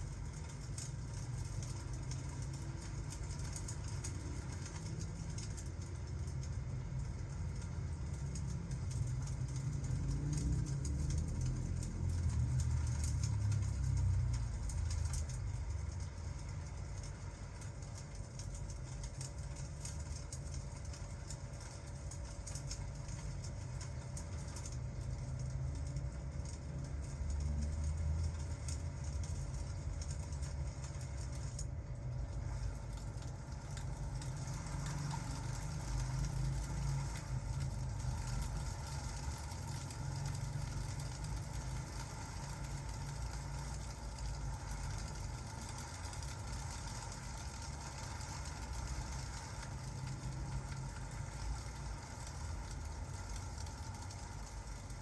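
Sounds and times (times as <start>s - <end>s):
fire crackling: 0.0s - 55.0s
rain: 0.0s - 55.0s.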